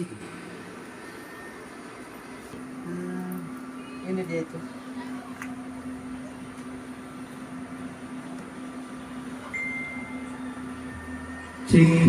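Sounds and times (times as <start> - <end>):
sound system hum and hiss: 0.0 - 12.0
thin high steady tone: 9.4 - 11.8.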